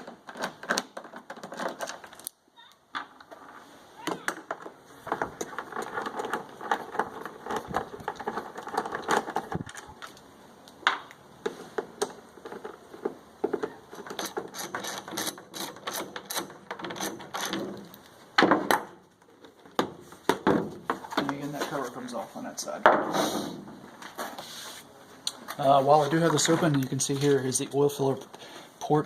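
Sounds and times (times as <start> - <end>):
plastic clatter: 0.0 - 2.3, 4.1 - 10.2.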